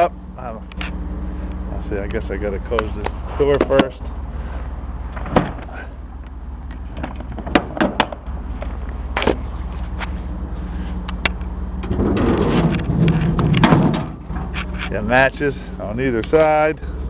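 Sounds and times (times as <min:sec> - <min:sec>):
idling engine hum: 0:00.0 - 0:17.0
truck door metal clicks and knocks: 0:05.2 - 0:05.7, 0:06.9 - 0:08.3, 0:12.6 - 0:14.6.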